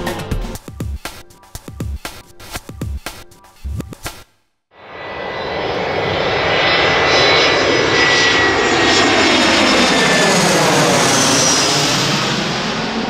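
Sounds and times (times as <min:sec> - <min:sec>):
jet airliner passing overhead: 0:04.8 - 0:13.0
thin high engine whine: 0:04.8 - 0:13.0.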